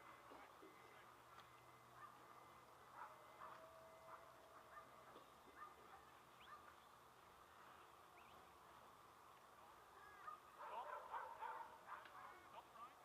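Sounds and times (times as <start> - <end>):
birds chirping: 0.2 - 7.1, 7.7 - 8.6.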